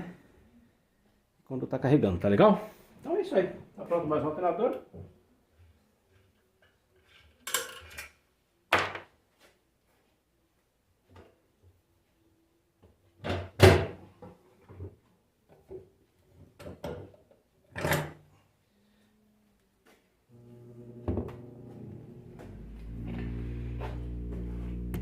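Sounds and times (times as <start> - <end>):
objects knocking on a workbench: 21.0 - 21.4.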